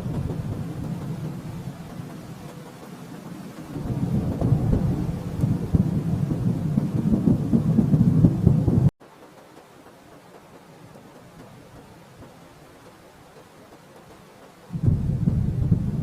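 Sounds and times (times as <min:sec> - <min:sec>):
distant thunder rolling: 0:00.0 - 0:08.9, 0:14.7 - 0:16.0.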